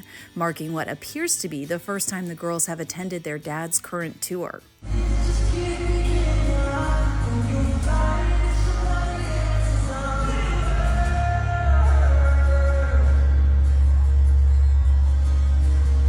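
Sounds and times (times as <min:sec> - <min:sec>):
band with heavy bass: 0:04.8 - 0:16.0
crowd shouting: 0:10.6 - 0:16.0.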